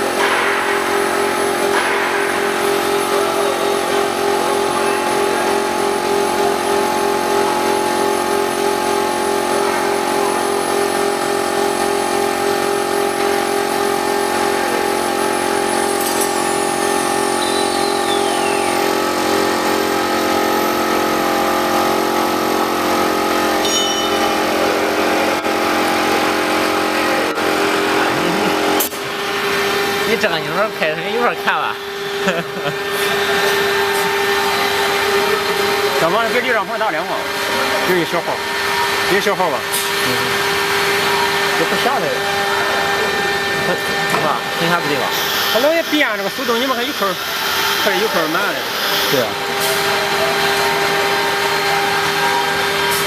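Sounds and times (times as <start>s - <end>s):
router machine whine and hum: 0.0s - 53.0s
pulsing tone: 15.8s - 19.7s, 23.6s - 24.6s.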